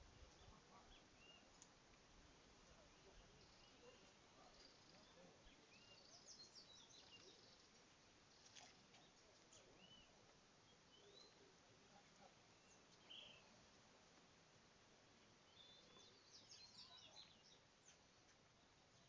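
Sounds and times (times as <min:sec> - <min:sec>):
faint background hiss: 0:00.0 - 0:19.0
faint clicks: 0:01.5 - 0:02.0.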